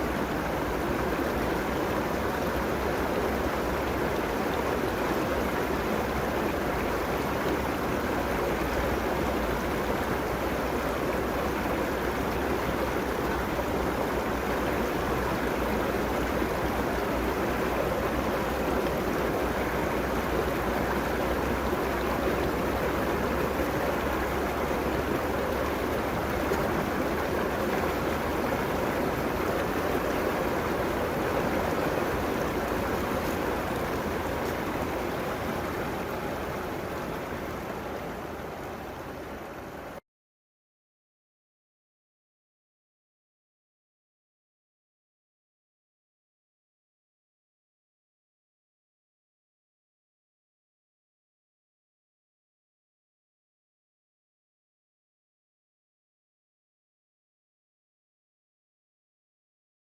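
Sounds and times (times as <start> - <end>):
river water rushing: 0.0 - 40.0.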